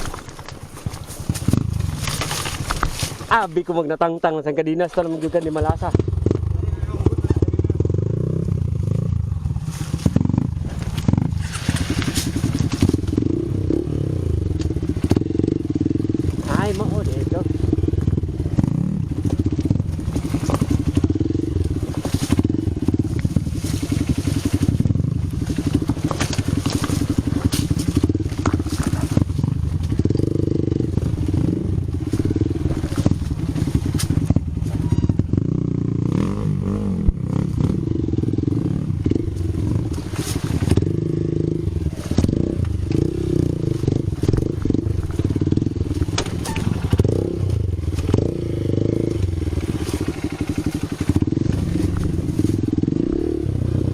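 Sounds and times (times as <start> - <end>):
knocks and rattles: 0.0 - 3.4, 25.4 - 31.4, 41.9 - 47.4
vehicle engine revving: 5.2 - 53.9.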